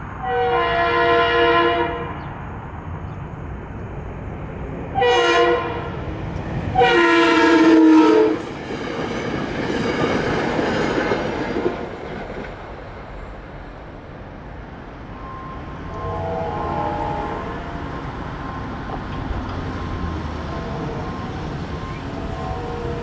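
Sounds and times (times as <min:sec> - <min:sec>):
train rumble and wheel clatter: 0:00.0 - 0:23.0
train air horn blast: 0:00.2 - 0:02.2, 0:05.0 - 0:06.0, 0:06.8 - 0:08.4, 0:15.2 - 0:18.0, 0:22.2 - 0:23.0.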